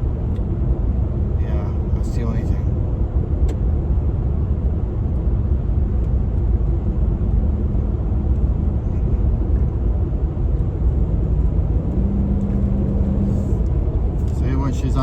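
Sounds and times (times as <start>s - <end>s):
truck road and engine rumble: 0.0s - 15.0s.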